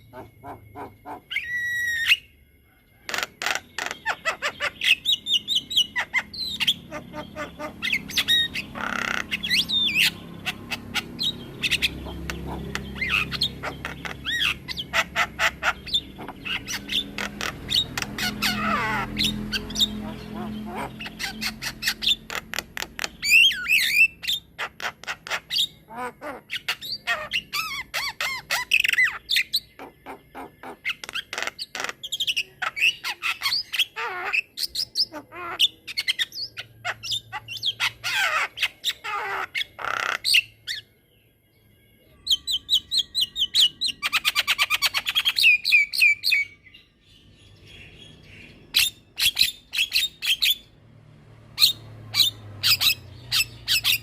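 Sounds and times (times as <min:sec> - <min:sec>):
bird singing varied song: 0:00.0 - 0:54.0.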